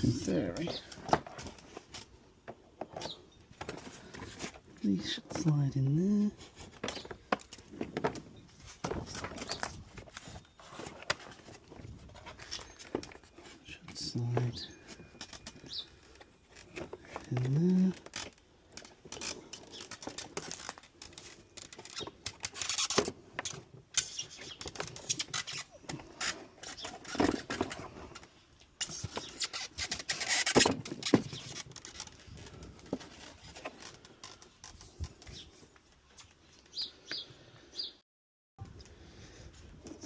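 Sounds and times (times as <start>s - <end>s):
plastic parts clicking and rattling: 0.0s - 5.7s, 6.4s - 35.4s.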